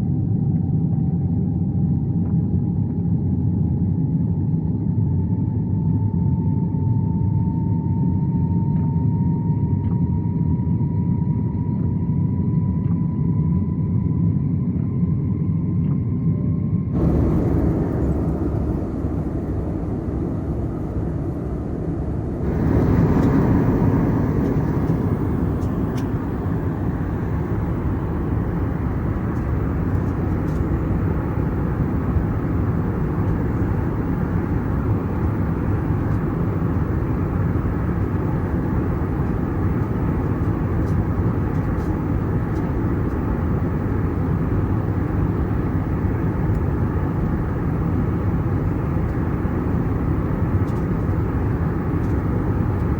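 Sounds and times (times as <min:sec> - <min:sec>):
jet engine and airflow in cabin: 0:00.0 - 0:52.9.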